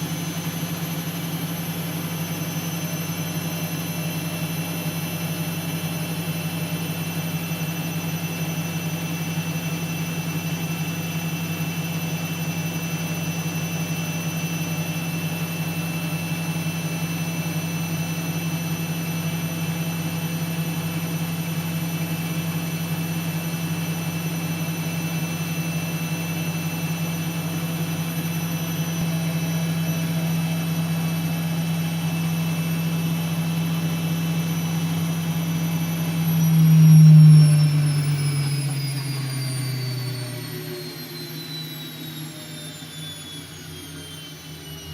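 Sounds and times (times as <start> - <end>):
washing machine motor hum: 0.0 - 44.9
high whine: 34.7 - 42.8.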